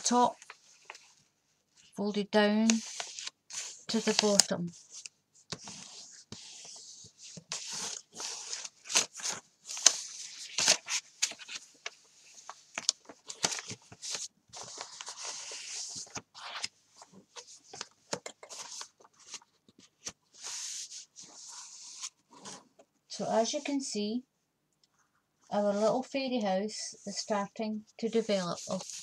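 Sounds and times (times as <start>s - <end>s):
paper pages rustling and crackling: 0.4s - 1.2s, 2.6s - 22.7s, 28.3s - 29.0s.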